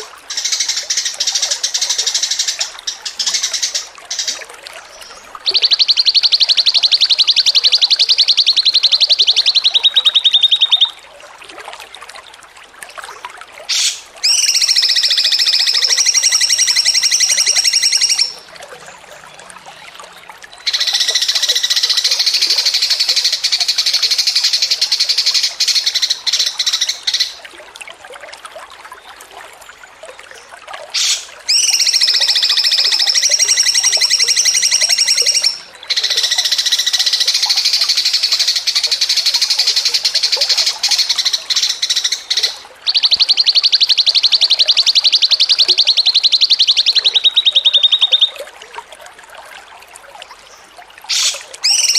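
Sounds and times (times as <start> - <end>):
bird chirps: 5.0 - 10.9, 13.7 - 18.4, 31.0 - 48.4, 51.1 - 51.9.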